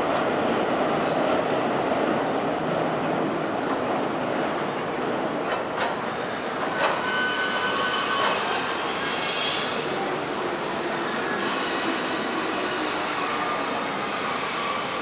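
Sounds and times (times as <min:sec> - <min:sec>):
train wheels rumbling on track: 0:00.0 - 0:15.0
high wheel squeal: 0:06.3 - 0:15.0.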